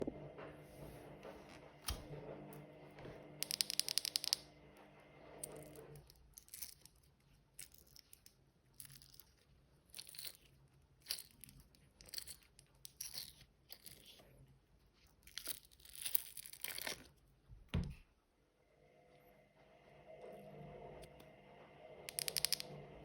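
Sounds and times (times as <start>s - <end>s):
washing machine hum: 0.0s - 3.6s, 4.2s - 6.0s, 17.6s - 23.0s.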